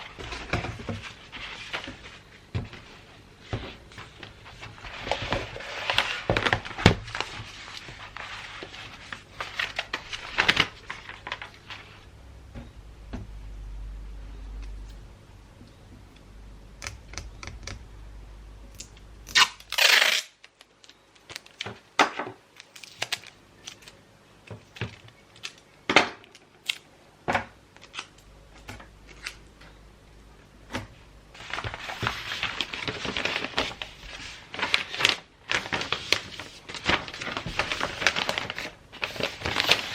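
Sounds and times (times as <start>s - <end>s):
wrapping paper rustling: 0.0s - 12.1s, 31.4s - 39.9s.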